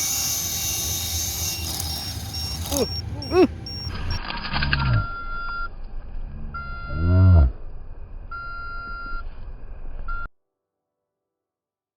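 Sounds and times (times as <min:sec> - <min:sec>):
short whir: 0:00.0 - 0:05.6
high electronic beep: 0:01.4 - 0:04.2, 0:04.8 - 0:05.7, 0:06.6 - 0:07.2.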